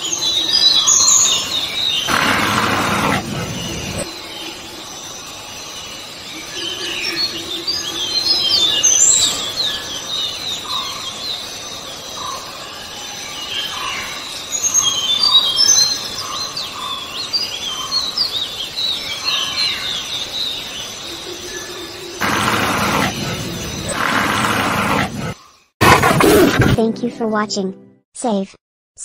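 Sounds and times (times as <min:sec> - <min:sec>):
birds chirping: 0:00.0 - 0:05.5, 0:13.4 - 0:26.8.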